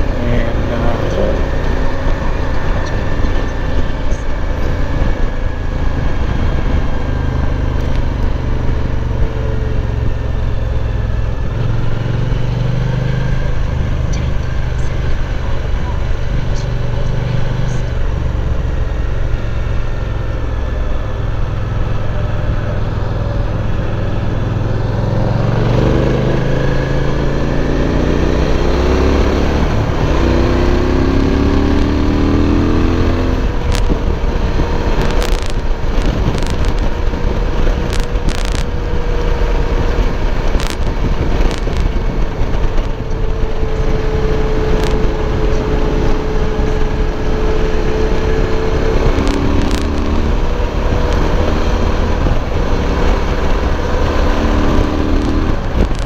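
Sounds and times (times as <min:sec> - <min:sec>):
motorcycle engine accelerating: 0:00.0 - 0:56.0
wind noise on microphone: 0:00.0 - 0:56.0
sharp clicks: 0:35.0 - 0:36.8.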